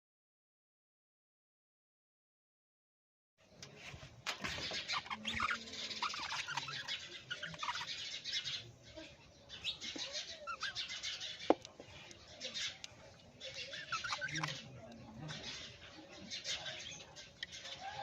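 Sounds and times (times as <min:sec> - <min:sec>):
parrots chirping and chattering: 0:03.5 - 0:18.0.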